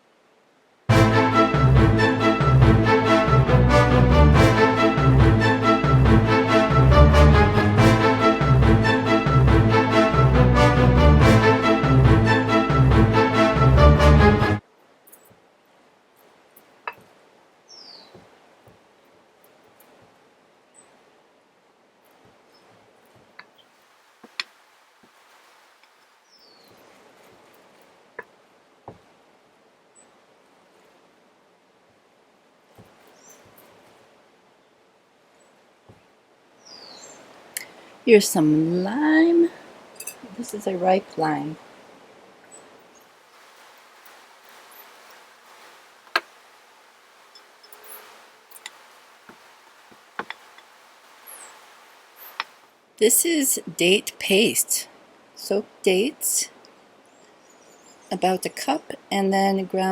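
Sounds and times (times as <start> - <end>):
faint outdoor background: 0.0 - 59.9
faint steady hiss: 0.0 - 59.9
bird chirp: 17.7 - 18.2, 26.2 - 26.9, 36.6 - 37.2, 50.4 - 52.5, 57.1 - 58.2.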